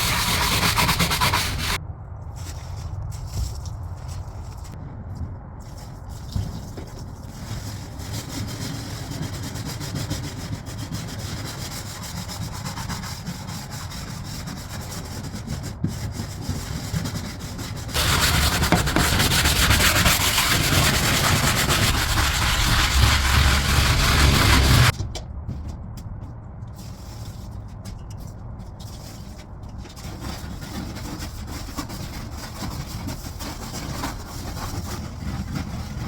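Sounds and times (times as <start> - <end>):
scrub brush rubbing on wood: 0.0 - 1.8, 17.9 - 24.9.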